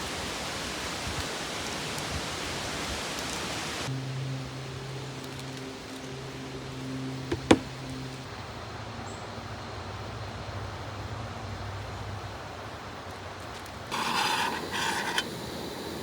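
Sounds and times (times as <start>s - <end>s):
camp stove burner hissing: 0.0s - 3.9s, 13.6s - 16.0s
scraping rustle: 13.4s - 15.4s.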